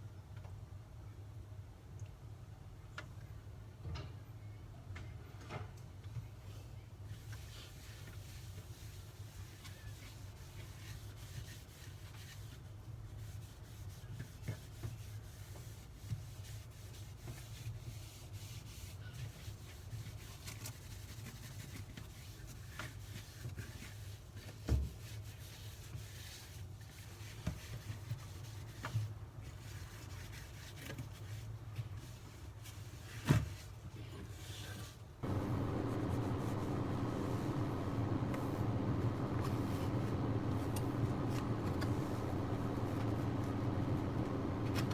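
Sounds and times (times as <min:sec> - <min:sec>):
loud droning noise: 0:35.2 - 0:44.9
sponge scrubbing: 0:35.2 - 0:44.9.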